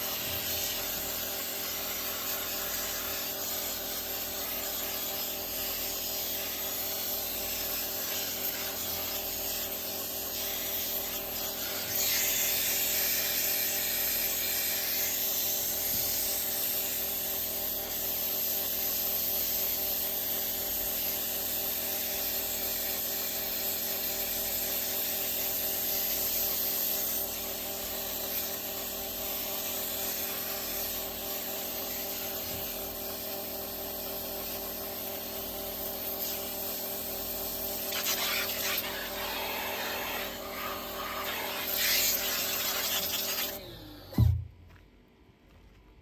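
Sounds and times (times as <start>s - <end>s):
water spray hissing: 0.0s - 14.5s, 37.7s - 43.6s
pressure washer motor hum: 28.5s - 44.6s.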